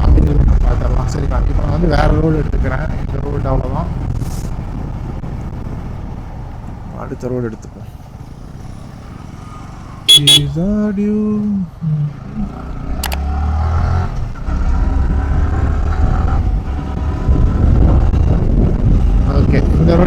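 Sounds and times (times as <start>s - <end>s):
motorcycle engine: 8.0s - 10.9s
vehicle horn toots: 10.1s - 10.6s
wind noise: 15.0s - 20.0s.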